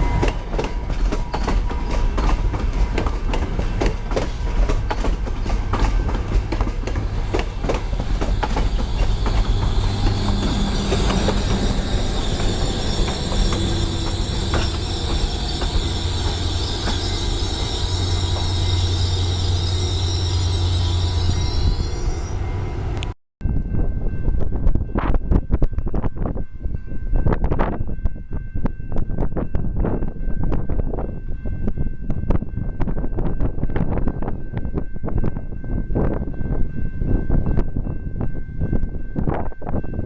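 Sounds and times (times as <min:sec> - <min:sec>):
train wheels squealing: 0:00.0 - 0:04.3, 0:04.9 - 0:23.0
wheels clicking over rail joints: 0:00.2 - 0:17.1.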